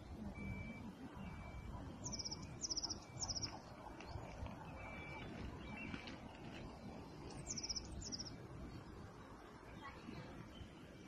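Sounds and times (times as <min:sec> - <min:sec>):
songbirds trilling: 0:00.0 - 0:11.0.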